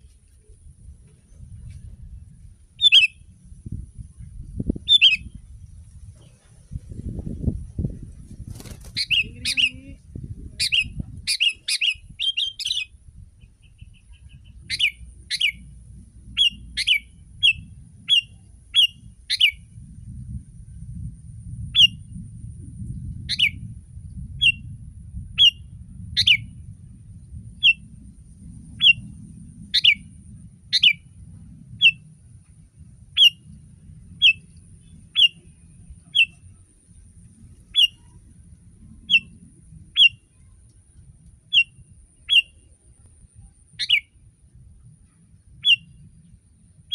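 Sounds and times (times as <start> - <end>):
faint low rumble: 0.0 - 46.9
bulbul chirping: 34.2 - 34.5, 35.1 - 36.5, 37.7 - 38.1, 43.8 - 44.1.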